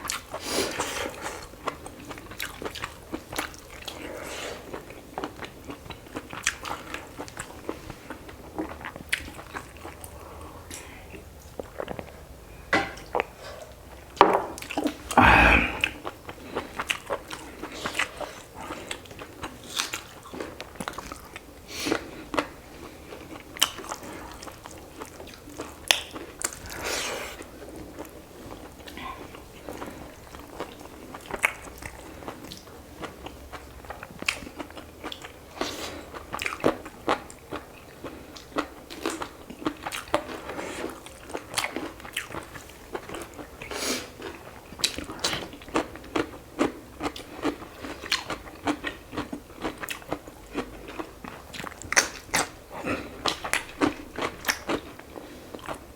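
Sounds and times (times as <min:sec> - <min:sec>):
chewing and crunching: 0:00.0 - 0:12.2, 0:15.8 - 0:55.9.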